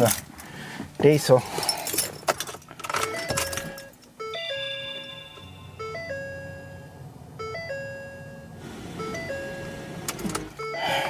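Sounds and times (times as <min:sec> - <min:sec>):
electronic warning chime: 0:03.1 - 0:11.0.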